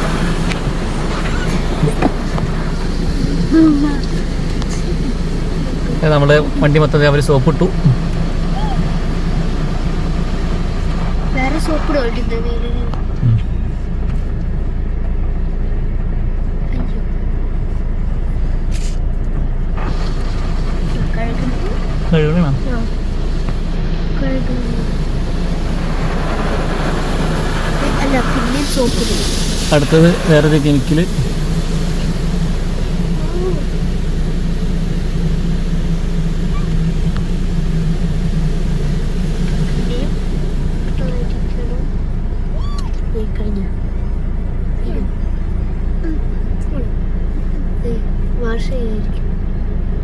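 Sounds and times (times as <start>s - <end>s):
short hissing sprays: 0.0s - 12.2s, 19.8s - 42.9s
car wash low rumble: 0.0s - 50.0s.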